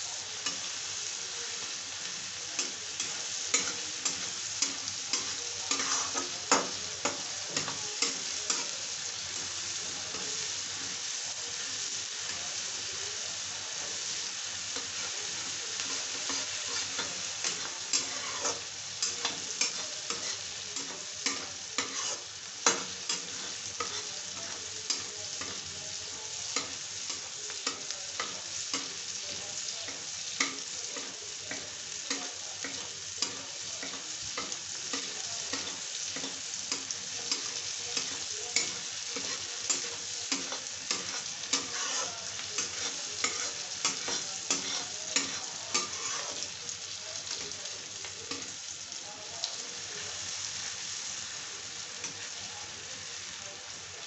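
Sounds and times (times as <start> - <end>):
vegetables sizzling in oil: 0.0 - 54.0
metal spatula scraping a pan: 2.6 - 12.4, 14.8 - 46.5.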